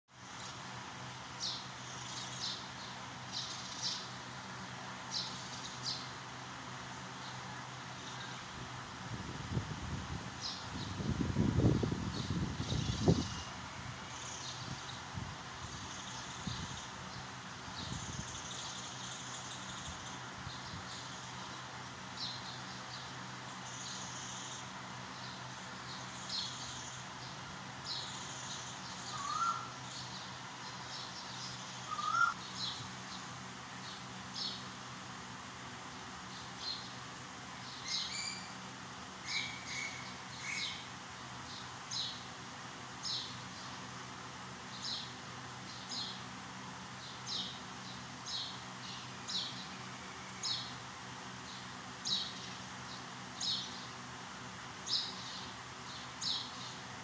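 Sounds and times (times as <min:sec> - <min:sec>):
bird chirping: 0:01.4 - 0:04.2, 0:22.2 - 0:34.7, 0:37.6 - 0:38.6
lower bird calls: 0:22.2 - 0:34.7, 0:39.2 - 0:42.2.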